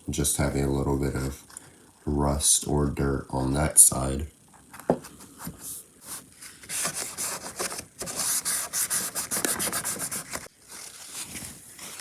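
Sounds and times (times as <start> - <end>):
cloth rubbing on plastic: 5.2 - 12.0.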